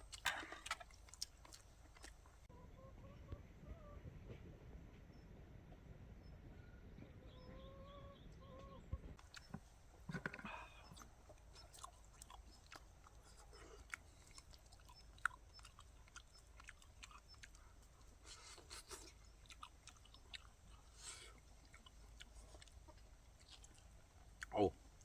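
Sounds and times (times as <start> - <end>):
people chewing food: 0.0 - 2.5, 8.5 - 25.0.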